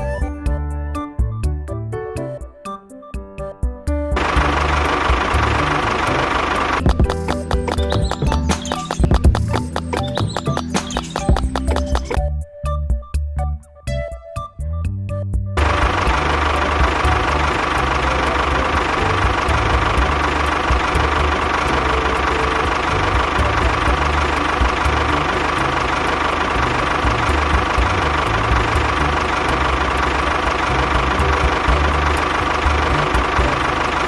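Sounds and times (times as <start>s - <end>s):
engine chugging with high whine: 15.6s - 34.0s.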